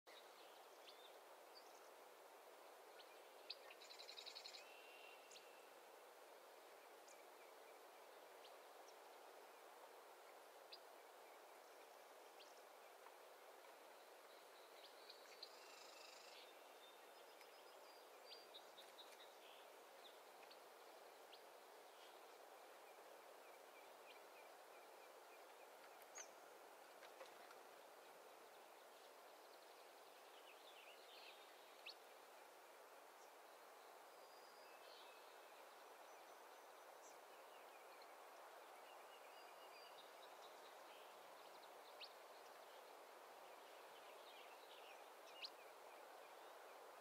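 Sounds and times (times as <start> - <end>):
soft steady hiss: 0.1 - 47.0
bird chirps: 14.2 - 22.3.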